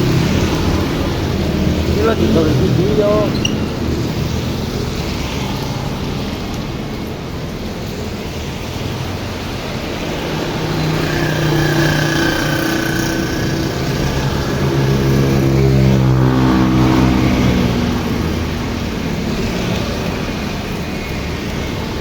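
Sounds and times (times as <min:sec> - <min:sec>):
vehicle engine passing by: 0:00.0 - 0:05.4, 0:09.8 - 0:19.8
heavy rain: 0:00.0 - 0:22.0.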